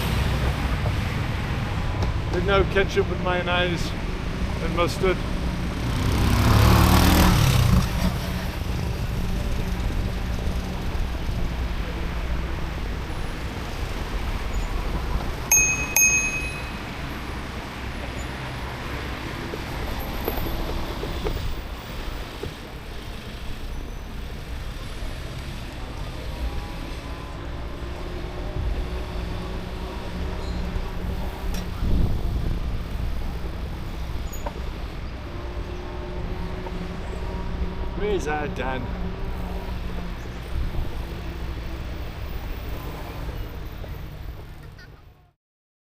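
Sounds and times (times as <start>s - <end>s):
wind and road rumble: 0.0s - 45.3s
bicycle bell ringing: 15.5s - 17.2s.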